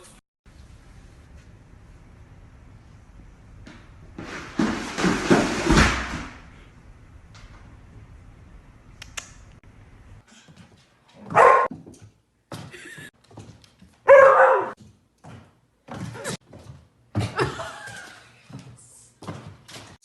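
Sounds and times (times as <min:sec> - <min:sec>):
dog barking: 0:11.2 - 0:11.7, 0:14.1 - 0:14.8.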